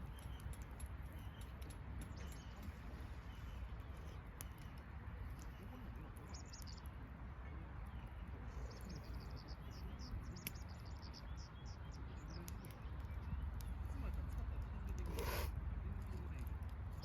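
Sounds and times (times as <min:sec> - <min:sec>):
faint sharp clicks: 0:00.0 - 0:02.8, 0:10.2 - 0:11.2
low outdoor rumble: 0:00.0 - 0:17.0.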